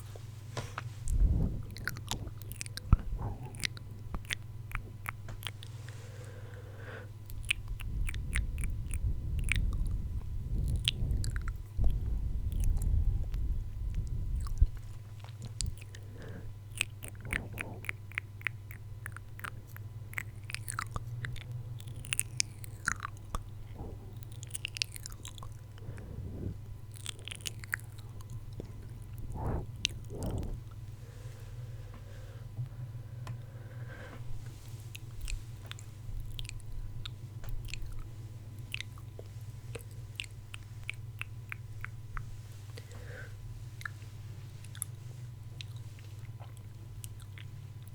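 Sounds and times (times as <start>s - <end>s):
deep rumble: 0.0s - 5.0s, 7.2s - 18.0s, 20.8s - 33.0s
wet mouth clicks and smacks: 0.6s - 5.8s, 7.2s - 30.8s.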